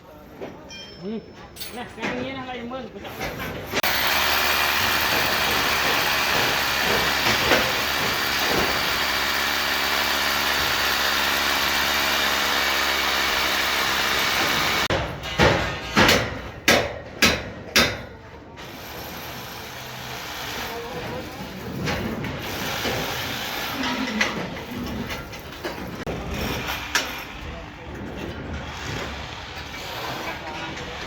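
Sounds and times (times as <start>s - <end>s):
machine engine running: 3.8s - 14.9s.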